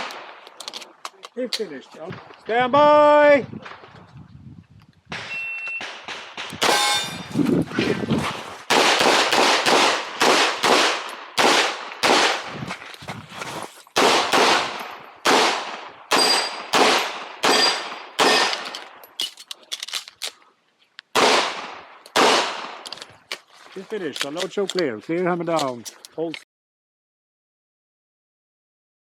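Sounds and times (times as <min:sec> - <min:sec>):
pistol shots: 0:05.1 - 0:07.2, 0:08.7 - 0:12.5, 0:14.0 - 0:18.7, 0:21.2 - 0:22.8
thin metallic ring: 0:06.7 - 0:07.4.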